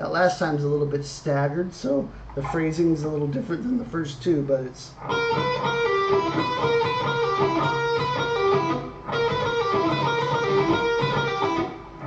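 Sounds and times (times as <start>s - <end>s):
electric guitar blues lick: 5.0s - 12.0s.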